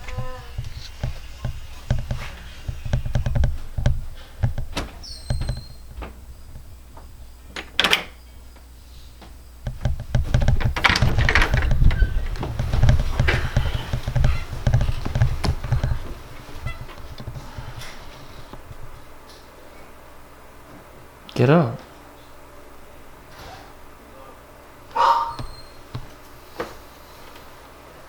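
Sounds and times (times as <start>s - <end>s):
knocking on a door: 0.0s - 6.7s, 9.6s - 17.8s.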